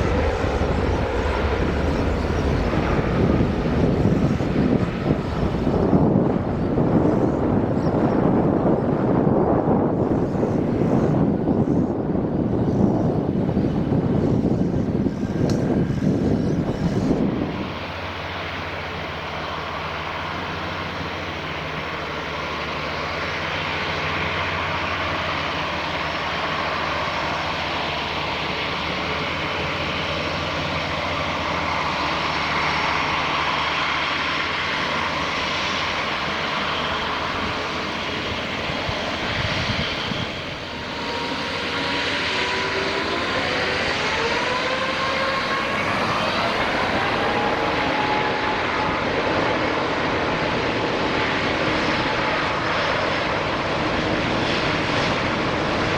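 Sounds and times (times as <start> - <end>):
jet engines roaring: 0.0 - 55.9
whining tones rising in pitch: 16.2 - 55.9.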